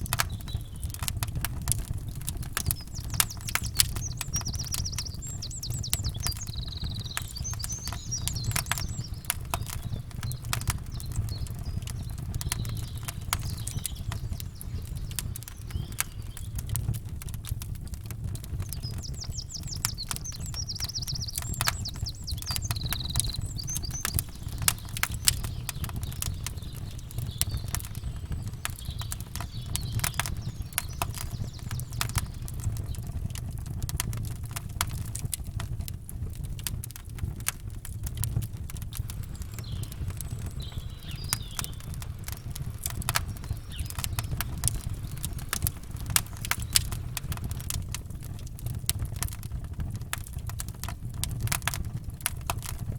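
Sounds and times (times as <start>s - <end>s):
birds chirping: 0.0s - 34.2s, 38.7s - 49.7s
campfire crackling and popping: 0.0s - 52.9s
low rumble: 39.0s - 48.6s.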